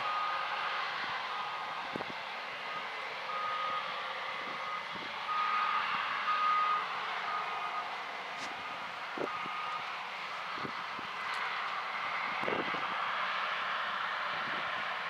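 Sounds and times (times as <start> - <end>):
backup alarm beeping: 8.6 - 9.9.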